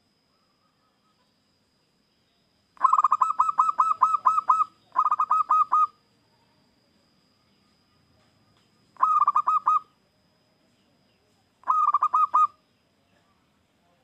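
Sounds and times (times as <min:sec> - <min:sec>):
dove cooing: 0:02.8 - 0:06.0, 0:09.0 - 0:09.9, 0:11.6 - 0:12.6.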